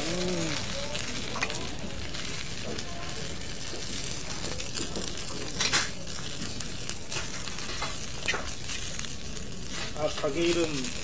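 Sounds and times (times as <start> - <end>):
rice sizzling on a pan: 0.0 - 11.0
metal spoon scraping a pan: 9.6 - 10.6.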